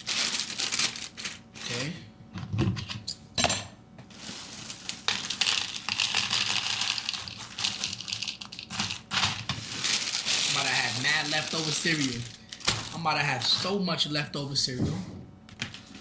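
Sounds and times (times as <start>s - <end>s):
cereal poured into a bowl: 4.2s - 12.3s.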